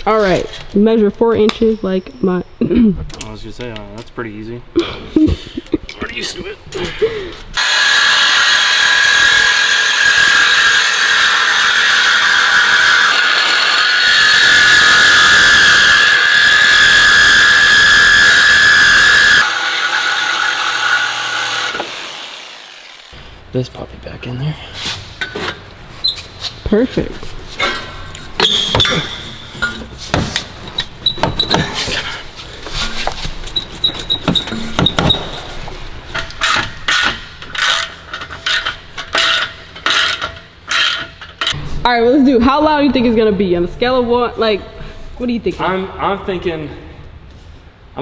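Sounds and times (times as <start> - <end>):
power tool cutting exhaust pipe: 7.6 - 23.5
metal tools clinking on exhaust pipe: 25.2 - 25.7, 27.6 - 30.1, 36.1 - 41.6.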